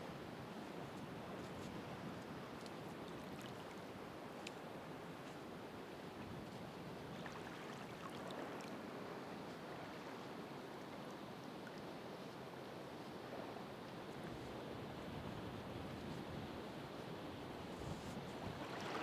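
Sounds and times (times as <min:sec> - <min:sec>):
faint ticks: 0:04.4 - 0:04.6
ocean surf washing on shore: 0:16.8 - 0:19.0.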